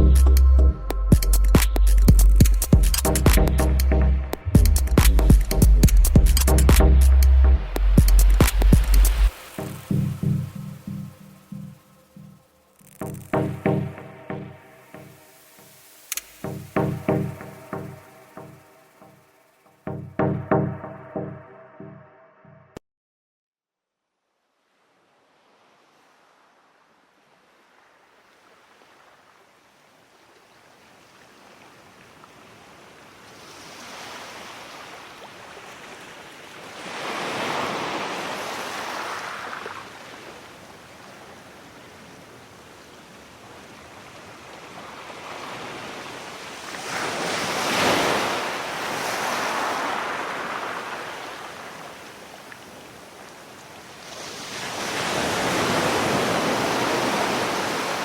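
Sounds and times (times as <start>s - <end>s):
sea waves breaking: 8.0s - 19.5s, 30.6s - 58.0s.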